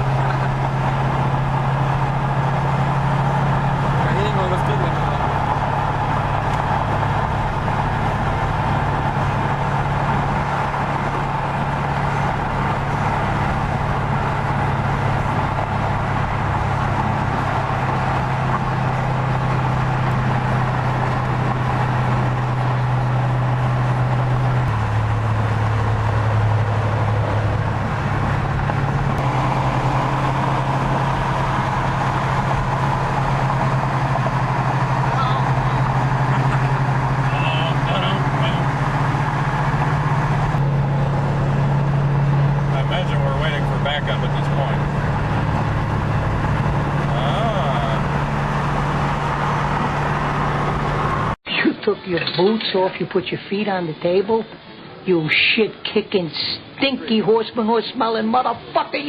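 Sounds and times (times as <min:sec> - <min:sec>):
car engine running: 0:00.0 - 0:51.4
road noise: 0:00.0 - 0:59.0.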